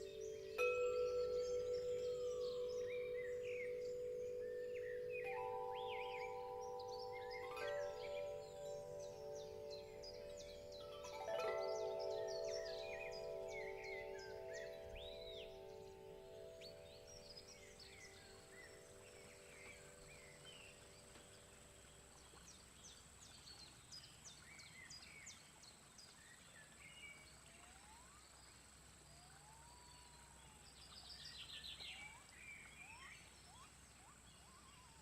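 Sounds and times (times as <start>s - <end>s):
singing bowl ringing: 0.0s - 20.8s
birds chirping and trilling: 0.0s - 23.0s.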